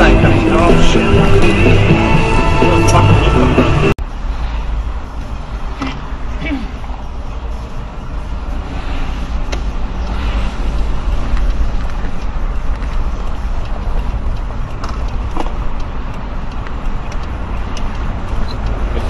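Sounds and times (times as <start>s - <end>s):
truck engine and road rumble: 0.0s - 19.0s
cab clicks and creaks: 9.3s - 19.0s.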